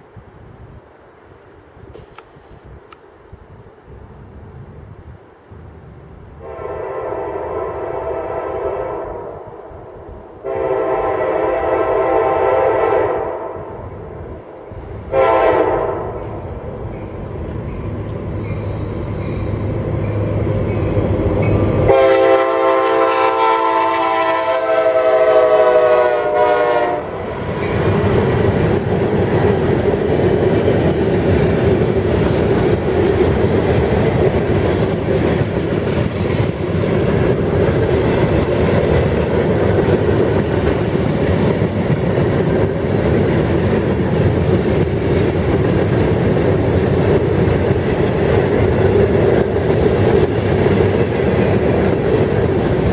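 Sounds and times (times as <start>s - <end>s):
freight train approaching: 0.0s - 52.9s
train horn blast: 6.4s - 14.0s, 15.0s - 16.5s, 21.4s - 27.8s
train wheels clattering on rails: 16.1s - 22.0s, 27.3s - 52.9s.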